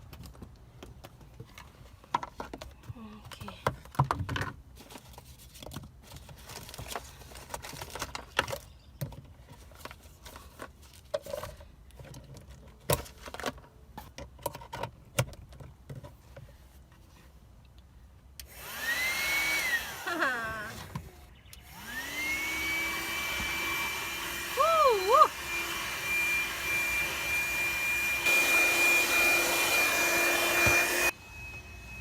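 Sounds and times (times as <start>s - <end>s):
vacuum motor rushing and whining: 18.5s - 32.0s.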